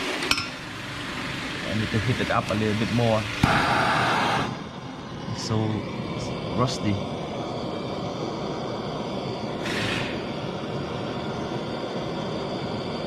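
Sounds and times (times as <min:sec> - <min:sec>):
workshop background noise: 0:00.0 - 0:10.7
brief hiss: 0:09.6 - 0:10.2.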